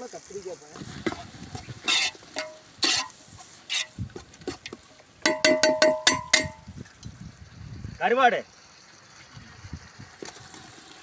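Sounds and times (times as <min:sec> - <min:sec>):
ladle knocking metal pot: 0:01.1 - 0:03.1, 0:03.7 - 0:06.7.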